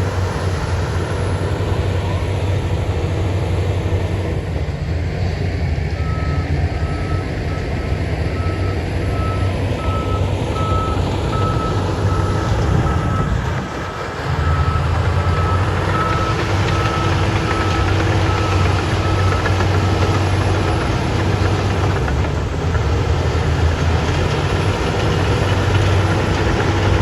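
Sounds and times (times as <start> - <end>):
diesel engine running: 0.0 - 27.0
reversing alarm beeping: 6.0 - 13.4, 14.4 - 21.2.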